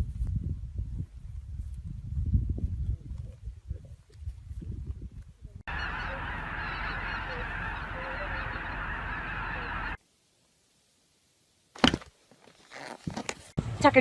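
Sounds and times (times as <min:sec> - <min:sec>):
flock of geese honking: 0:05.7 - 0:10.0.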